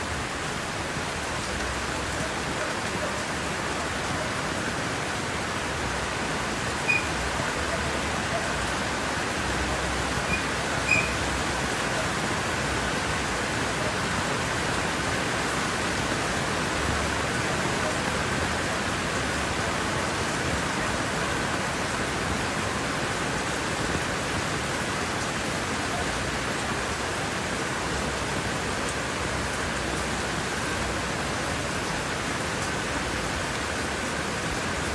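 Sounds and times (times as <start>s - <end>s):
rain falling on leaves: 0.0s - 34.9s.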